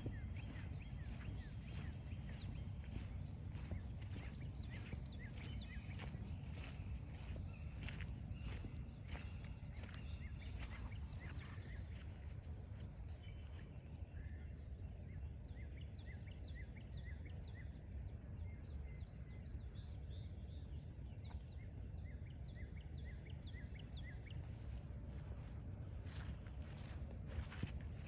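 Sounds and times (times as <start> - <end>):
footsteps on trail: 0.0 - 13.8, 24.2 - 28.0
steady low rumble: 0.0 - 13.8
songbirds chirping: 0.0 - 17.8, 18.6 - 28.0.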